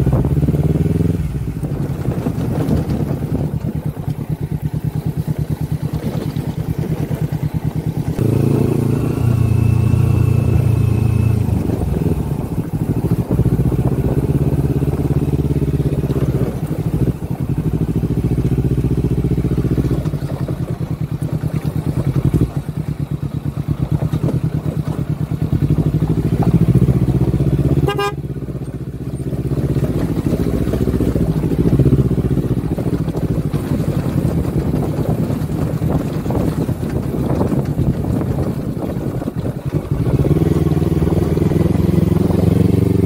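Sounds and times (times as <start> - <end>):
motorcycle engine running: 0.0 - 43.0
short beep: 8.6 - 11.5.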